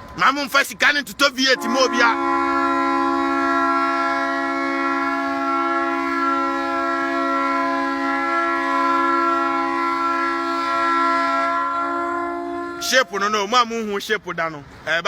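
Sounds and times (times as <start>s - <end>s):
steady horn-like chord: 1.5s - 13.4s.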